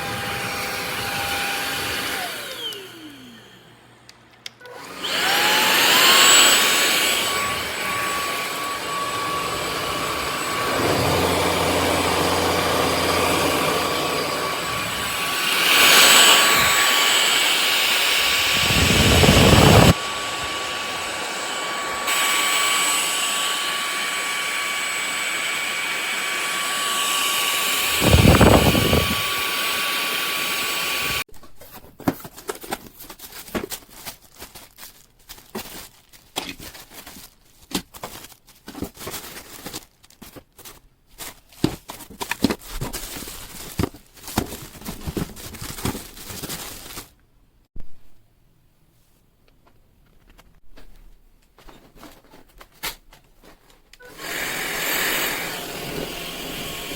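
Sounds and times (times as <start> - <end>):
stick vacuum whining: 0.0 - 31.3, 54.0 - 56.9.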